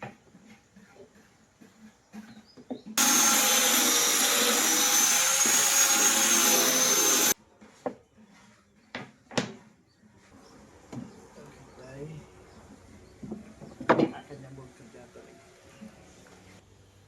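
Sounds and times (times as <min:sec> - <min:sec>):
high-speed power tool whining: 0:03.0 - 0:07.4.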